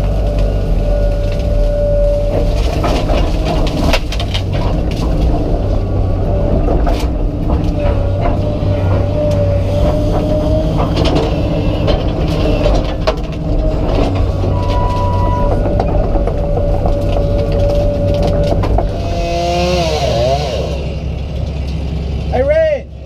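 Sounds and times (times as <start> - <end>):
excavator engine with hydraulic whine: 0.0 - 23.0
cracks and knocks: 2.2 - 20.4.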